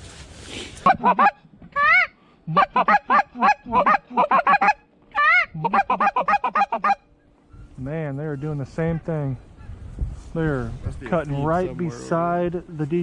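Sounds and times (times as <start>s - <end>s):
goose clucking: 0.8s - 7.1s
goose honking: 0.8s - 7.1s.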